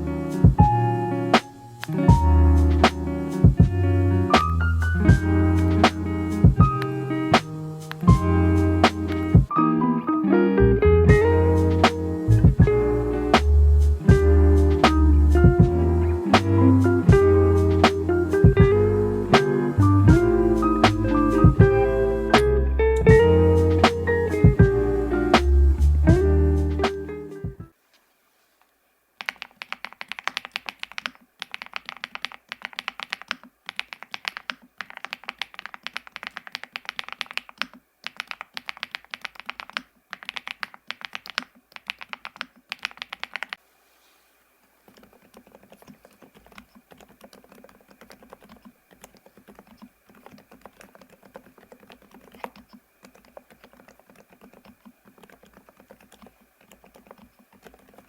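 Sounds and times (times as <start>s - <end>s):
mechanical keyboard typing: 29.2s - 43.6s, 44.9s - 58.0s.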